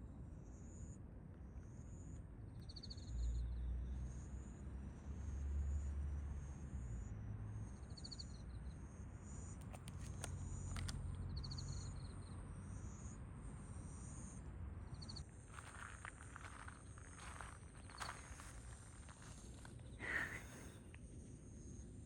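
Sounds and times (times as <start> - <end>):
insects trilling: 12.8 - 22.0
rustling footsteps: 15.5 - 19.8.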